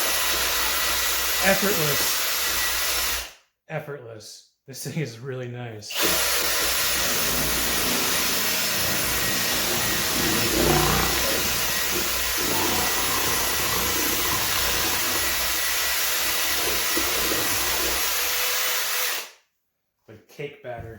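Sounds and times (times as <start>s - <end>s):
cordless drill motor whine: 5.9s - 19.2s.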